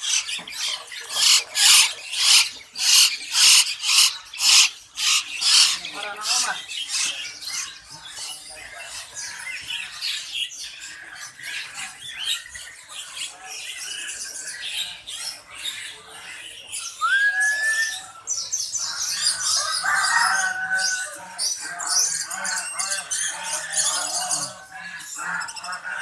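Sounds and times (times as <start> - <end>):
caged birds chirping chorus: 0.0 - 26.0
rising whistle: 17.0 - 18.1.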